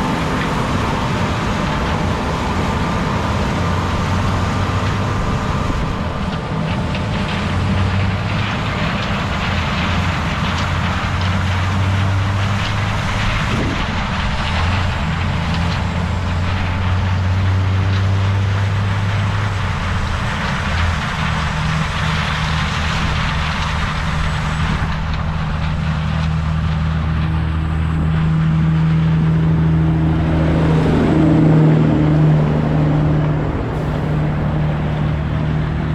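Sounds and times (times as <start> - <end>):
heavy diesel machinery running: 0.0 - 35.9.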